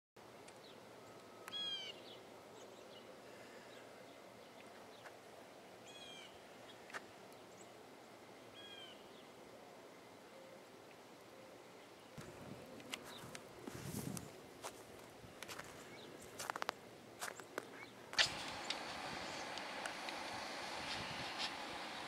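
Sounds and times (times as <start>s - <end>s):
faint outdoor background: 0.2s - 22.0s
sharp click: 18.1s - 20.2s.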